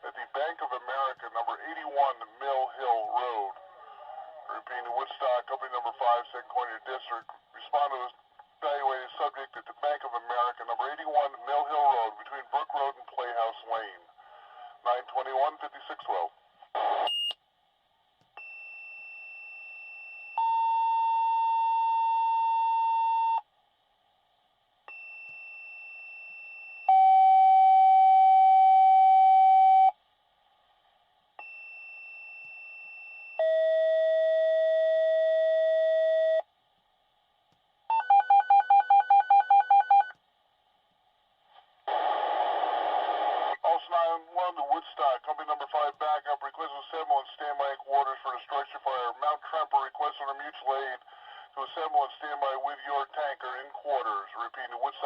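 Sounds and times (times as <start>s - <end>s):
dispatcher voice over radio: 0.0s - 14.1s, 14.8s - 16.3s, 43.5s - 55.0s.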